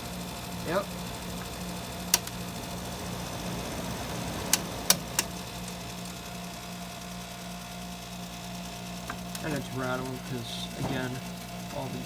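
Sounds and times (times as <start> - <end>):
window air conditioner humming: 0.0 - 12.0
sharp clicks of debris in fan: 1.2 - 6.8, 8.6 - 11.8.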